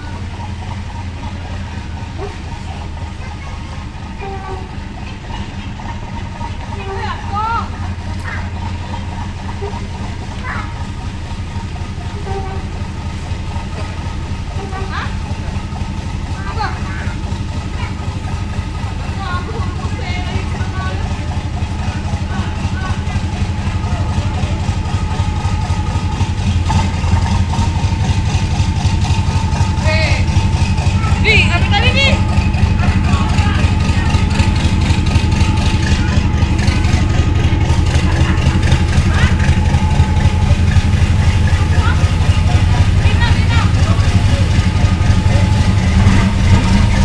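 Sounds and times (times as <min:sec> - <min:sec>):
ship diesel engines droning: 0:00.0 - 0:47.0.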